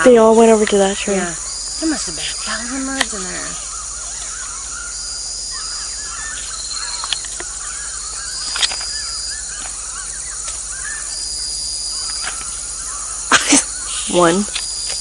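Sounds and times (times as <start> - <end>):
flock of birds chirping: 0.0 - 15.0.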